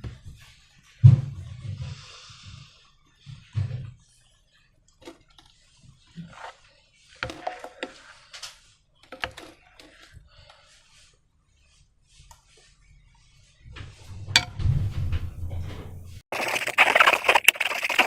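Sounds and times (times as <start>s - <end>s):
low thump: 14.2s - 16.2s.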